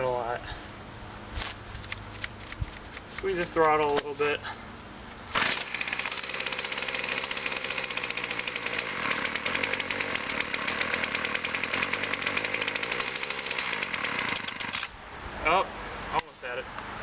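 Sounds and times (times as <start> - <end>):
weed whacker engine running: 5.3 - 15.0.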